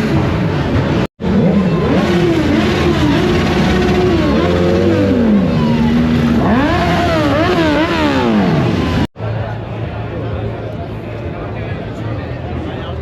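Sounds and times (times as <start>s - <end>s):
motorcycle engines revving: 0.0s - 10.1s.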